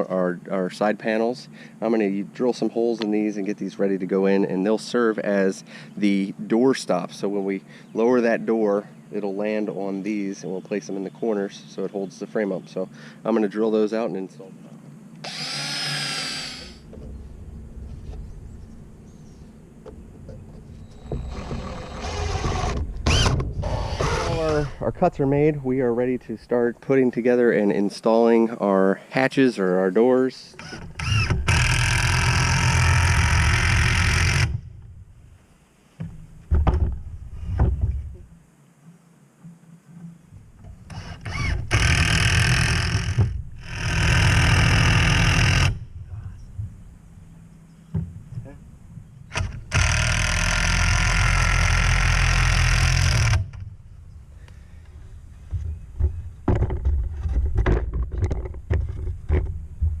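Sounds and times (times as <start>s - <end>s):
power tool running: 15.2s - 17.1s, 19.9s - 24.8s, 30.6s - 34.6s, 40.9s - 45.8s, 49.3s - 53.6s
knocks and handling: 16.8s - 24.3s, 36.0s - 41.0s, 45.9s - 50.0s, 54.8s - 60.0s
wood knocking and clicking: 36.0s - 38.3s, 55.4s - 60.0s.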